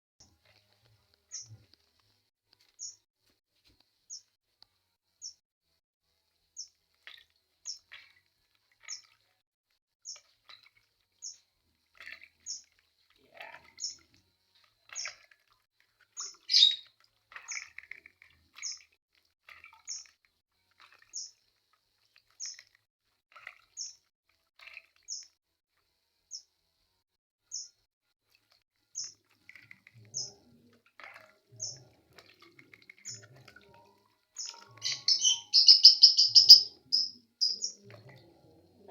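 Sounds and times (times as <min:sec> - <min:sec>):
bird chirping: 0:01.3 - 0:01.6, 0:07.6 - 0:08.0, 0:11.2 - 0:11.4, 0:12.5 - 0:12.7, 0:16.2 - 0:16.9, 0:21.1 - 0:21.3, 0:27.5 - 0:27.7, 0:30.0 - 0:30.5, 0:31.5 - 0:32.0, 0:33.0 - 0:38.0.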